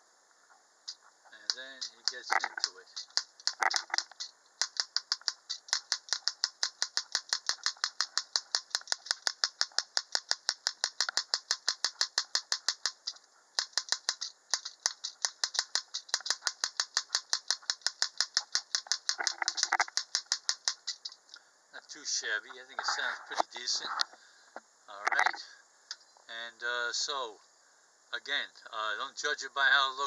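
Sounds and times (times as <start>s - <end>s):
rapid metallic tapping: 0.9s - 21.2s.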